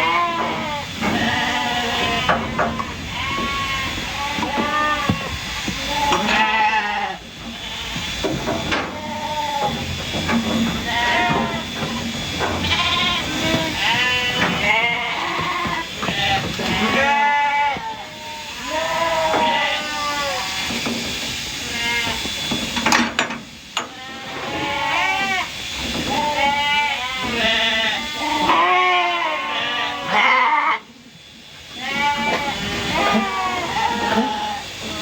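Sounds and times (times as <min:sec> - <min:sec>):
sheep bleating: 0:00.0 - 0:09.9, 0:10.7 - 0:20.7, 0:23.8 - 0:30.9, 0:31.7 - 0:35.0.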